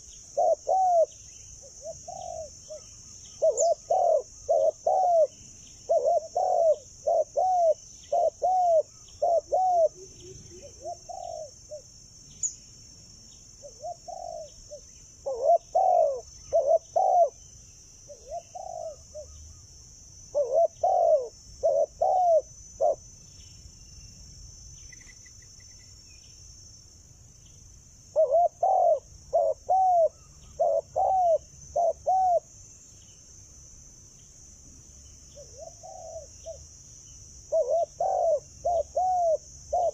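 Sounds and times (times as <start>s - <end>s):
doves cooing: 0.0s - 11.9s, 13.6s - 17.4s, 18.1s - 19.4s, 20.3s - 23.0s, 28.2s - 32.5s, 35.4s - 36.6s, 37.5s - 39.9s.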